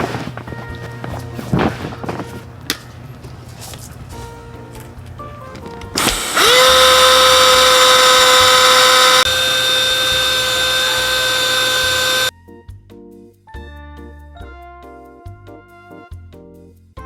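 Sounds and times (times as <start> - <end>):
electric air pump whining: 5.9 - 12.3.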